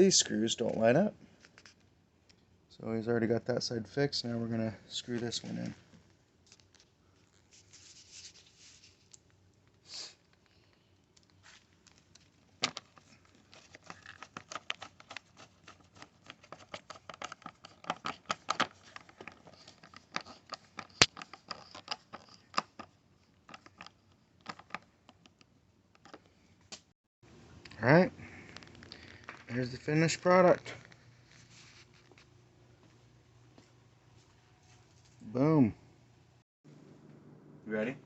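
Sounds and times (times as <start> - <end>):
tool clicking and scraping on plastic: 12.7 - 22.9.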